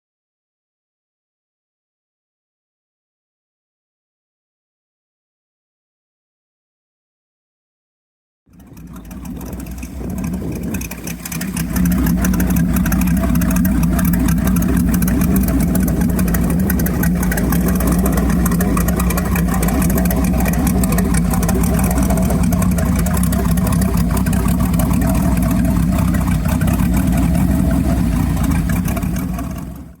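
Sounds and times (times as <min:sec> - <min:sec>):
engine running: 0:08.5 - 0:30.0.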